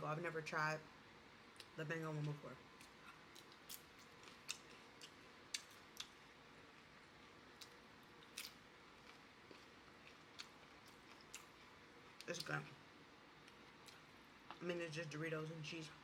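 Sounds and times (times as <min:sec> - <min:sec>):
crunchy chewing: 0:01.6 - 0:12.8.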